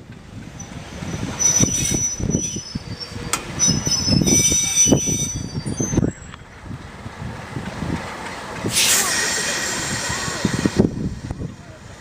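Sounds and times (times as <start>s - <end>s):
train rumbling on rails: 0.0s - 12.0s
train wheels squealing: 0.6s - 6.5s
short hiss: 8.7s - 10.3s.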